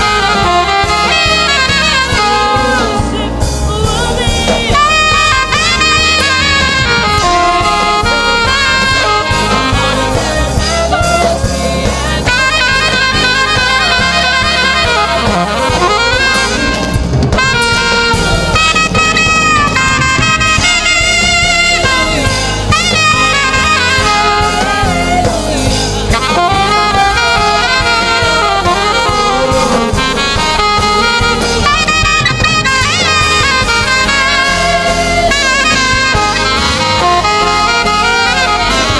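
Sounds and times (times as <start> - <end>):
gospel band playing: 0.0 - 38.9
saxophone melody: 0.0 - 38.9.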